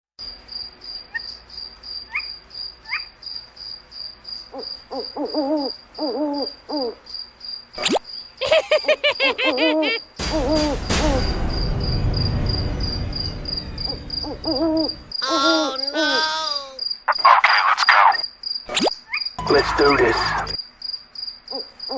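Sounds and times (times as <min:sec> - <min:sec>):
insect chirping: 0:00.2 - 0:10.2, 0:12.2 - 0:21.9
loud rushing noise: 0:10.2 - 0:15.2.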